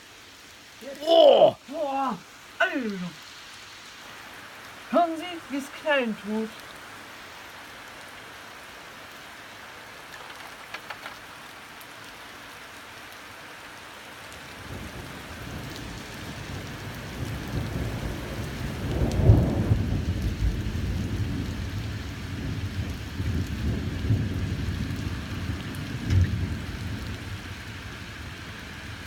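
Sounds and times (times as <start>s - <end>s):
heavy rain hiss: 0.0s - 29.0s
thunder rumbling: 14.7s - 27.8s.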